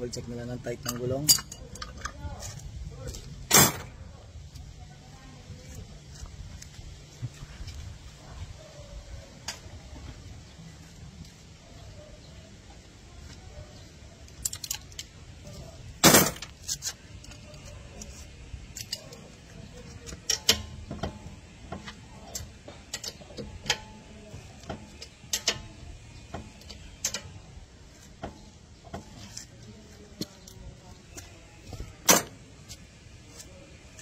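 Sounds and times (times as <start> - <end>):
metal hand tools clinking: 0.8 - 2.2.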